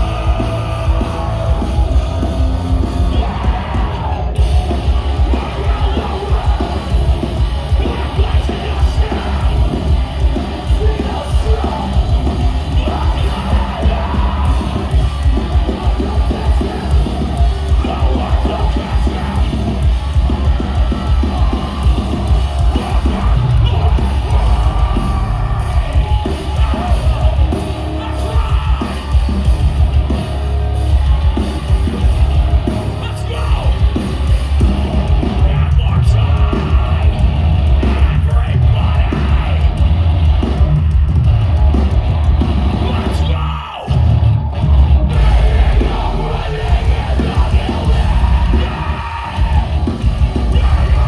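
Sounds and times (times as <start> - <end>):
screamed vocals: 0.0 - 29.3, 42.7 - 51.0
distorted guitars: 0.0 - 51.0
pounding drums: 0.0 - 51.0.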